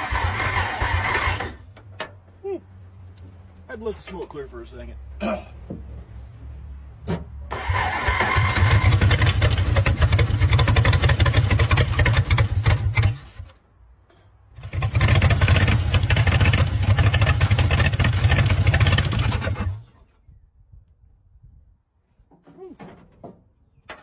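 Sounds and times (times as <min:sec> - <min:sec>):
old car engine running rough: 0:00.0 - 0:01.8, 0:07.5 - 0:13.5, 0:14.6 - 0:20.0.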